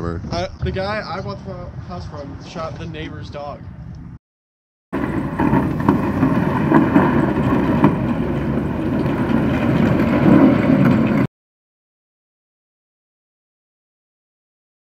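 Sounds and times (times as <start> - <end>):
wind buffeting microphone: 0.0 - 4.2, 5.0 - 11.3
engine running: 5.0 - 11.3.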